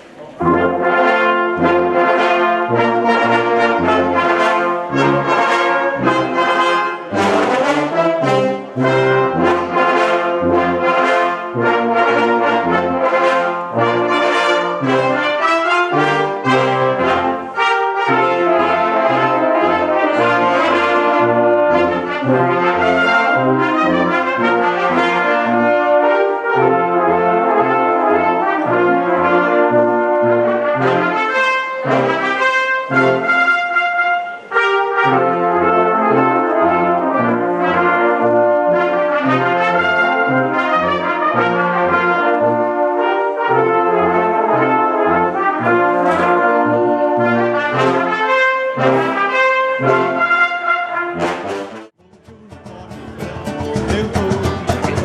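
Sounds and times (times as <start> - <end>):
upbeat brass music: 0.4 - 55.0
bass notes: 51.4 - 55.0.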